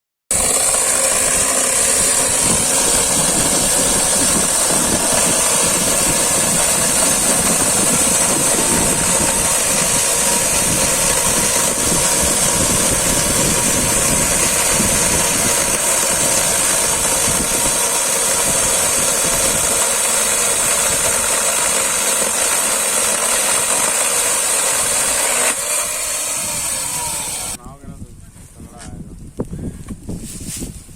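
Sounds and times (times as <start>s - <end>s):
chainsaw running with whine: 0.3s - 27.6s.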